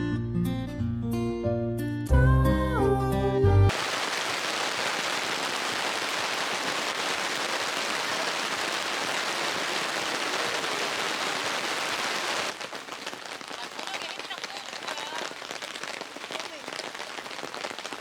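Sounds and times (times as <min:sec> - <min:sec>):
rain falling: 0:03.7 - 0:18.0.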